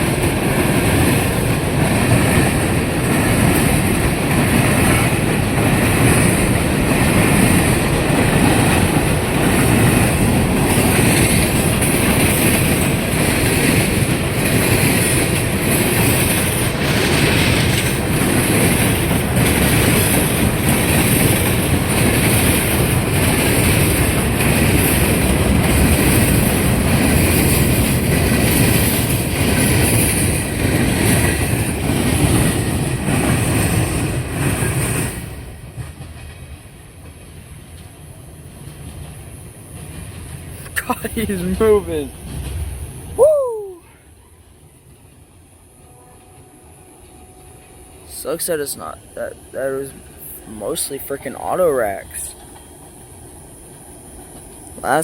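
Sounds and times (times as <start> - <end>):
train wheels clattering: 0.0 - 43.2
freight train passing: 0.0 - 55.0.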